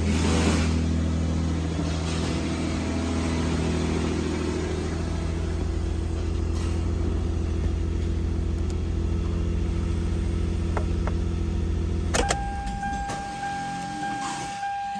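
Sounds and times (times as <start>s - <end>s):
car engine idling: 0.0s - 14.1s
ignition switch click: 12.1s - 13.3s.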